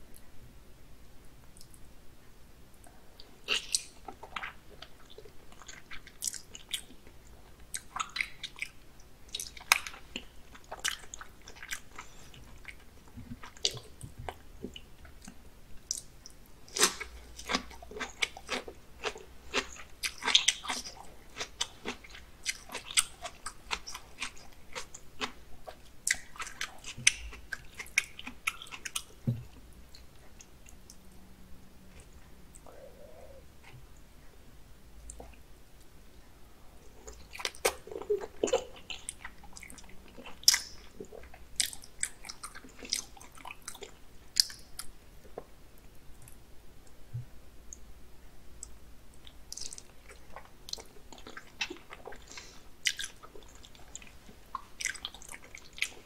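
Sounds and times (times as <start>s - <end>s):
person chewing: 3.2s - 31.0s, 36.8s - 45.5s, 48.6s - 56.0s.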